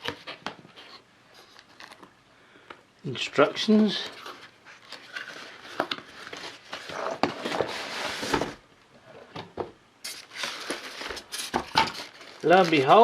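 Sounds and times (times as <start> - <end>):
cardboard and paper rustling: 0.0 - 2.1, 3.8 - 8.6, 10.1 - 13.0.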